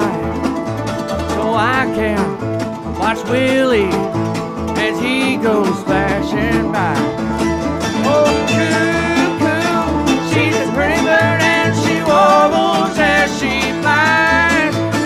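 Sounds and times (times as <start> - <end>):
string band playing: 0.0 - 15.0.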